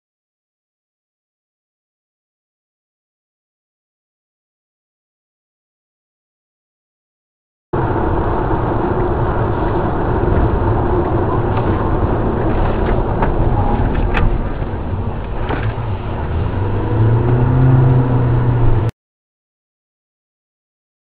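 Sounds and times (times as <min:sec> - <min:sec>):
car engine and road rumble: 0:07.8 - 0:18.9.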